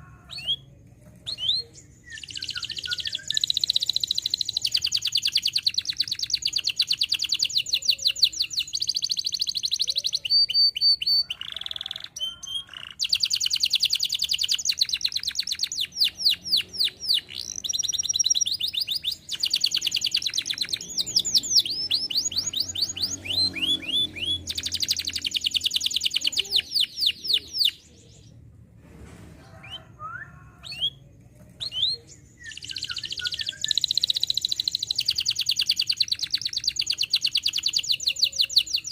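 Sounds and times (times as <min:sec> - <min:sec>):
canary singing trills: 0:00.0 - 0:28.4, 0:29.6 - 0:38.9.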